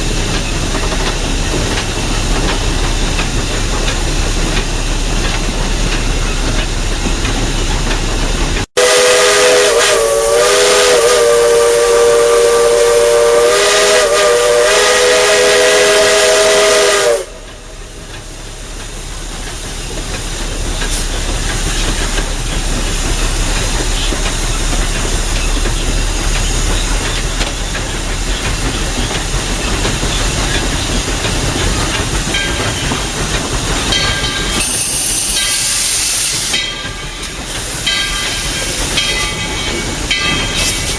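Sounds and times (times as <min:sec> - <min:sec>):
high hiss of steam: 0:00.0 - 0:40.9
locomotive running hiss and rumble: 0:00.0 - 0:40.9
steam locomotive whistle: 0:08.8 - 0:17.8, 0:34.6 - 0:39.1.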